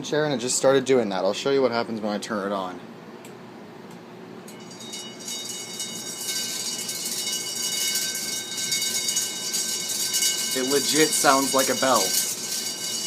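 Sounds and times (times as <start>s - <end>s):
fan rushing noise: 0.0s - 13.0s
ceiling fan metallic ringing: 4.4s - 13.0s.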